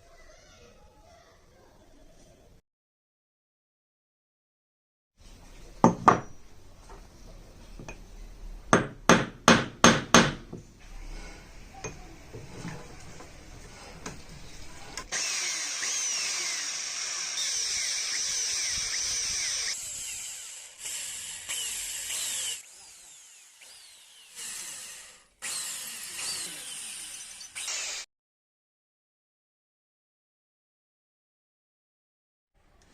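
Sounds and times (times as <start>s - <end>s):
sharp knocks on metal: 5.8s - 6.3s, 8.7s - 10.6s
power tool hissing: 15.0s - 28.1s.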